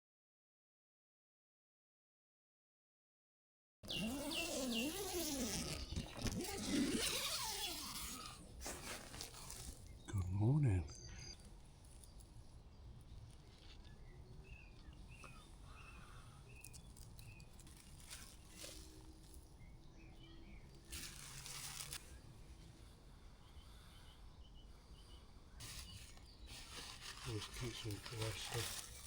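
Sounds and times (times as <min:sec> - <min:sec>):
rustles: 0:03.9 - 0:10.5, 0:11.3 - 0:24.0, 0:24.9 - 0:29.0
faint bird calls: 0:03.9 - 0:19.0.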